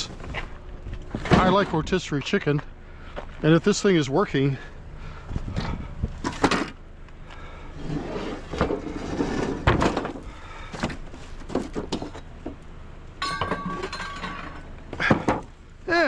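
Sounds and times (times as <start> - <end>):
scrap items knocking and clunking: 5.5 - 6.8, 7.8 - 12.6, 13.2 - 15.5
metal clattering: 13.2 - 15.5.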